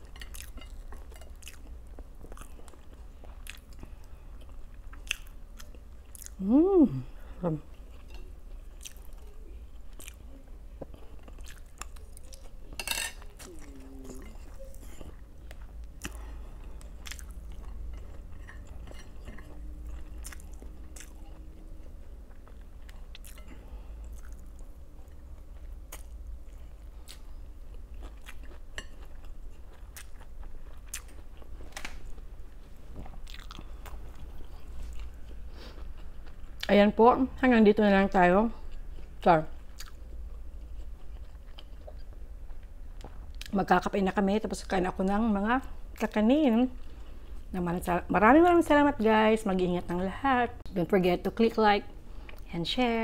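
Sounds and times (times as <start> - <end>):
steady low hum: 0.0 - 53.0
chewing and biting food: 0.2 - 6.4, 7.8 - 32.2, 32.8 - 36.7, 38.7 - 43.6.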